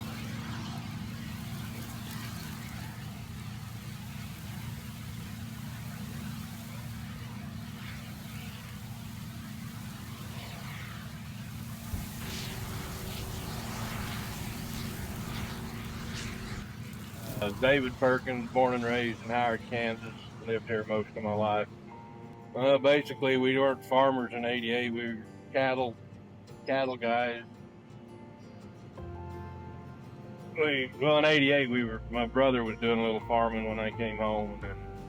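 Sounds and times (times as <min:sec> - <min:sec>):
engine low hum: 0:00.0 - 0:21.6.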